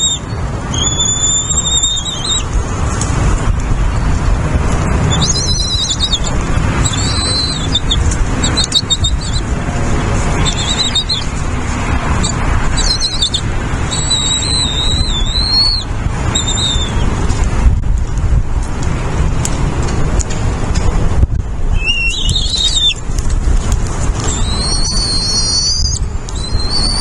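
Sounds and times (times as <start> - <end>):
bird high wavering calls: 0.0 - 2.5, 5.1 - 9.5, 10.4 - 11.3, 12.2 - 17.1, 21.8 - 23.0, 24.2 - 27.0.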